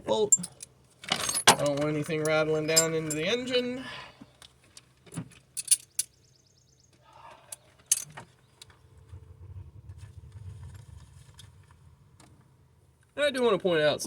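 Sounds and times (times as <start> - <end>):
metal tools clinking: 0.3 - 3.4
faint low rumble: 8.5 - 14.0.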